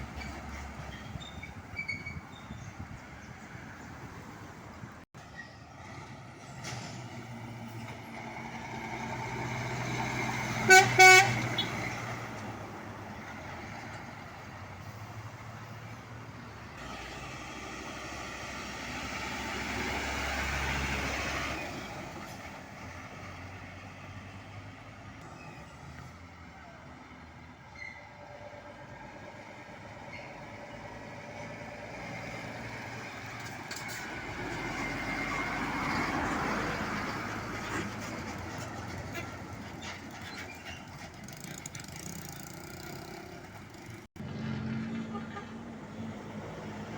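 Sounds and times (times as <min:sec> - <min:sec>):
passing traffic: 0:00.0 - 0:46.9
vehicle passing by: 0:05.8 - 0:27.5, 0:28.7 - 0:46.9
truck air horn blasts: 0:10.6 - 0:11.8, 0:45.0 - 0:45.7.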